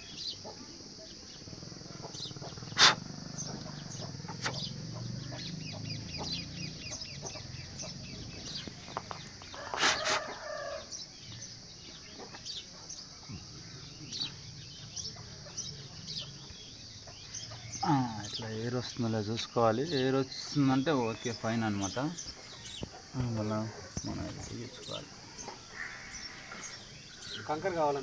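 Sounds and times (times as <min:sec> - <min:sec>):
birds chirping: 0:00.0 - 0:28.0
loud bird call: 0:01.9 - 0:11.1, 0:20.8 - 0:28.0.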